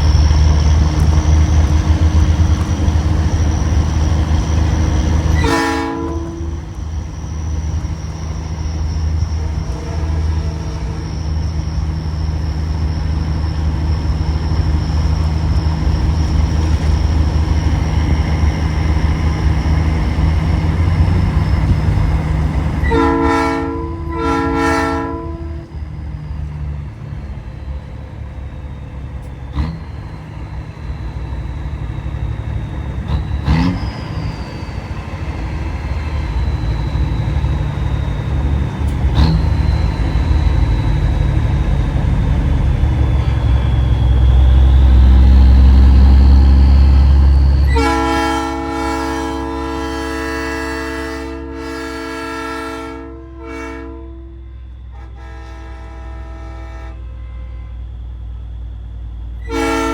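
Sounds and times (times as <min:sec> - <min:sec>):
truck engine drone: 0:00.0 - 0:59.9
train horn chord blasts: 0:05.3 - 0:06.8, 0:09.4 - 0:11.4, 0:22.8 - 0:25.8, 0:47.7 - 0:57.8, 0:59.4 - 0:59.9.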